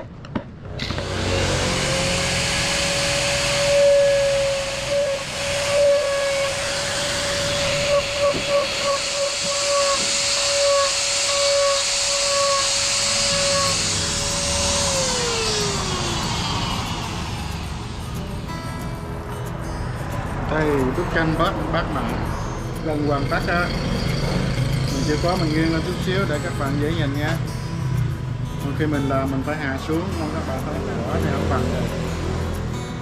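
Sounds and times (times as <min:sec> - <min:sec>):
electric motor whining: 0:00.6 - 0:18.9, 0:22.1 - 0:28.5
rushing hiss: 0:01.0 - 0:18.3.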